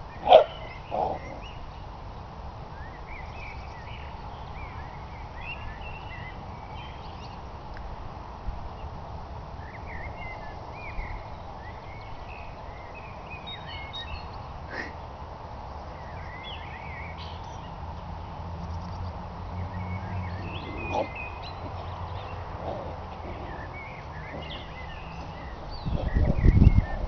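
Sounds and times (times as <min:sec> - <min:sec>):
songbirds chirping and twittering: 0:00.0 - 0:27.0.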